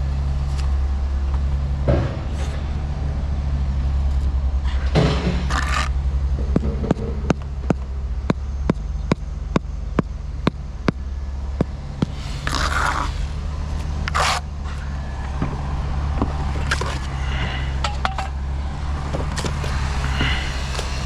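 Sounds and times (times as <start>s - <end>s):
steady low hum: 7.4s - 21.0s
short scraping sounds: 12.0s - 14.5s, 16.6s - 21.0s.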